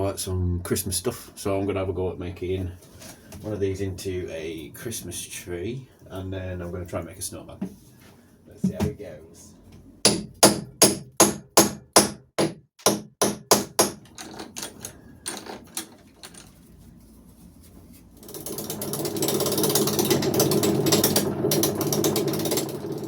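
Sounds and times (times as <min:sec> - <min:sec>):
wood lathe running: 0:18.2 - 0:23.0.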